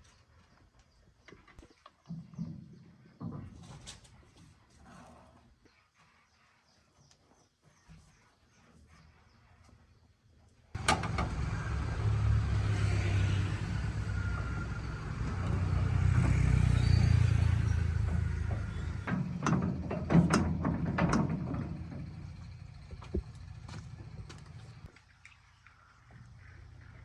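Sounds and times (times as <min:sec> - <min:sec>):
motor humming: 0:10.8 - 0:24.9.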